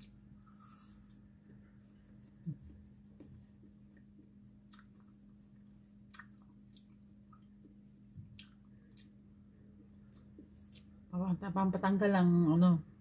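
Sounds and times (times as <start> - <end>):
low steady hum: 0.0 - 13.0
mouth chewing clicks and smacks: 4.0 - 5.3, 6.0 - 9.2.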